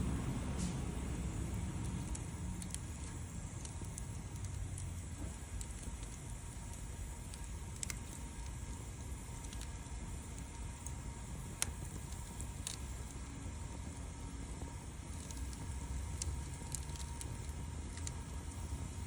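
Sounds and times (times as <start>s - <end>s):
low rumble: 0.0s - 6.5s
wood fire crackling: 0.0s - 19.0s.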